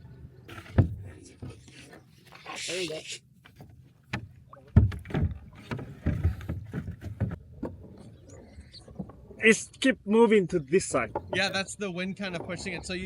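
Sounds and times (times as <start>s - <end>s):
knocks and thumps of dinghy hull: 0.5s - 2.3s, 3.4s - 9.4s, 10.8s - 13.0s.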